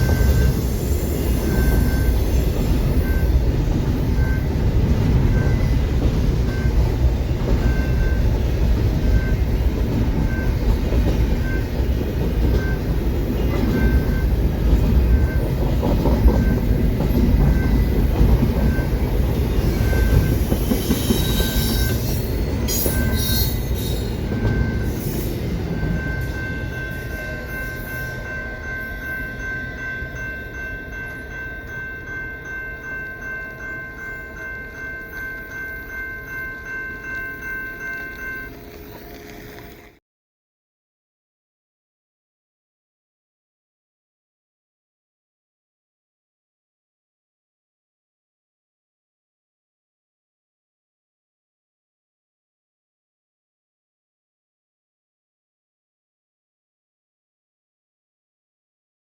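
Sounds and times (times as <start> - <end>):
crossing bell ringing: 0.0 - 40.0
train rumbling: 0.0 - 40.0
wheels squealing: 19.5 - 26.5.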